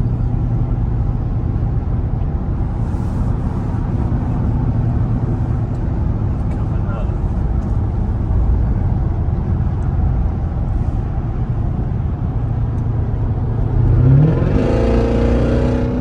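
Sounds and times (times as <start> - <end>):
road and engine rumble: 0.0 - 16.0
engine revving: 13.4 - 16.0.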